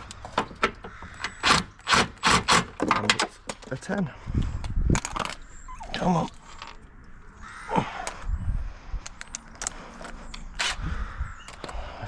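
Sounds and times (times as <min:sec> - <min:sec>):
person grunting: 0:07.7 - 0:08.1.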